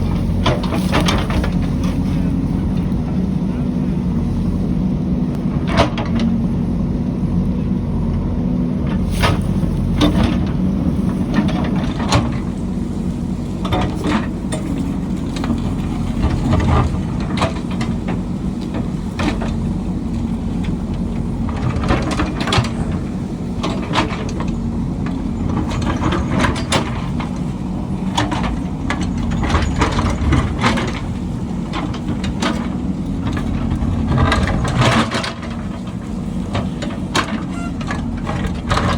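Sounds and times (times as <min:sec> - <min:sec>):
diesel engine running under load: 0:00.0 - 0:38.9
metallic clanks and knocks: 0:13.5 - 0:38.9.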